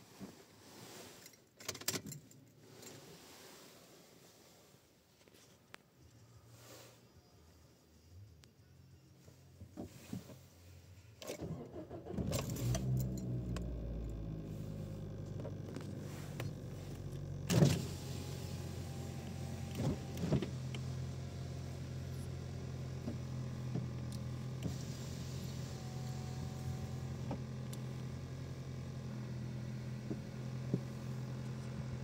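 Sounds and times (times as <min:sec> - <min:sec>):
engine starter cranking: 0:11.2 - 0:15.6
car engine idling: 0:11.4 - 0:32.0.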